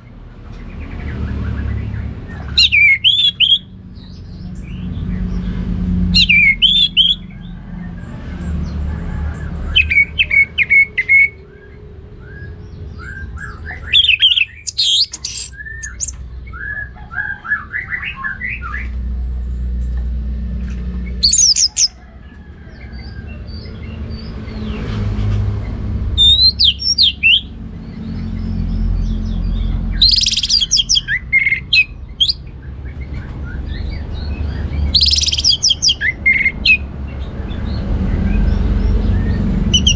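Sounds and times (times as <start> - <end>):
bird singing whistled notes: 10.6 - 18.9, 26.2 - 27.5, 30.0 - 32.4, 34.9 - 36.6.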